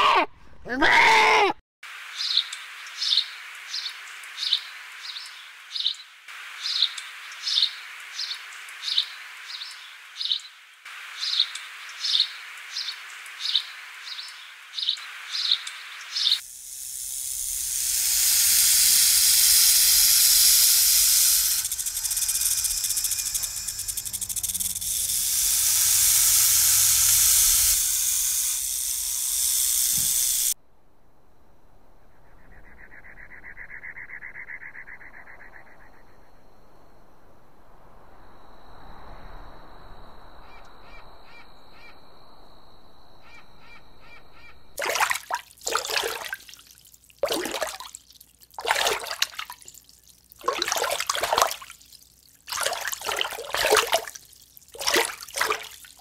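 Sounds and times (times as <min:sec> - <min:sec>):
snake hissing: 0:17.0 - 0:27.9.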